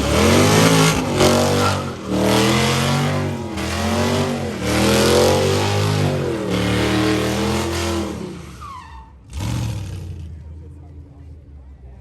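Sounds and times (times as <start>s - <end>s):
car engine revving hard: 0.0s - 8.6s.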